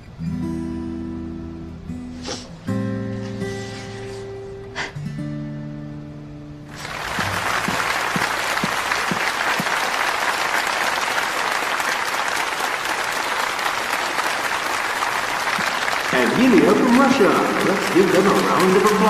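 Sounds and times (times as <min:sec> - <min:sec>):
guitar music: 0:00.0 - 0:09.1
audience applauding: 0:06.7 - 0:19.0.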